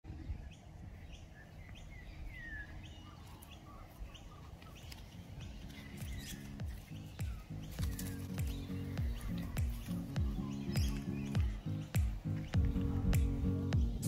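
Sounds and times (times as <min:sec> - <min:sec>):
small birds chirping: 0:00.1 - 0:14.0.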